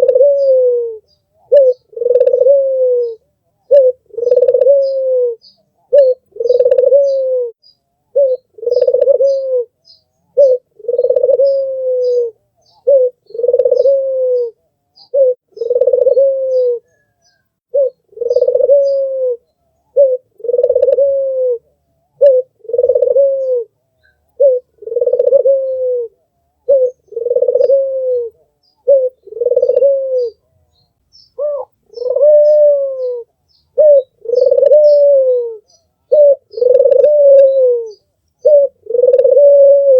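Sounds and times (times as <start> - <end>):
dove cooing: 0.0 - 30.5, 31.4 - 39.9.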